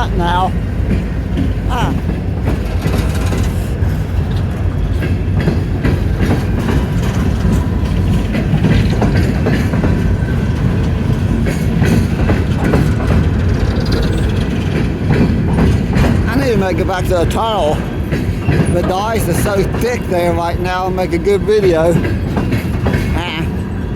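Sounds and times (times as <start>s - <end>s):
train rolling past rumbling: 0.0s - 23.9s
wheels clicking over rails: 0.0s - 23.9s.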